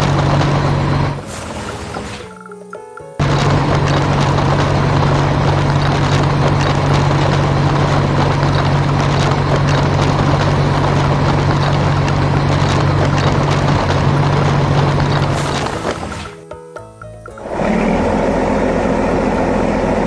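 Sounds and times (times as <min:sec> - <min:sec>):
dense rattling clatter: 0:00.0 - 0:02.4, 0:03.2 - 0:16.4
low engine-like drone: 0:00.0 - 0:02.4, 0:03.2 - 0:16.4, 0:17.3 - 0:20.0.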